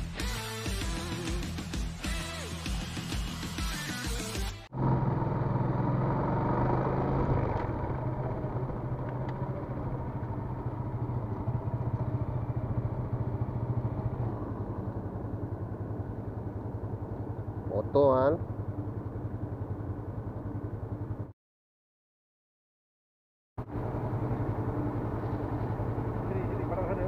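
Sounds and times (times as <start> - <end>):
motorcycle engine running: 4.7 - 21.3, 23.6 - 27.0.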